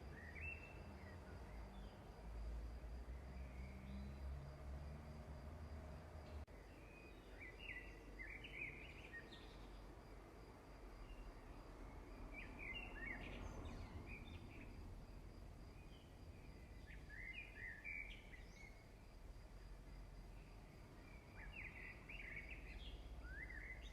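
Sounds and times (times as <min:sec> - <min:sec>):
small bird chirping: 0:21.0 - 0:23.9.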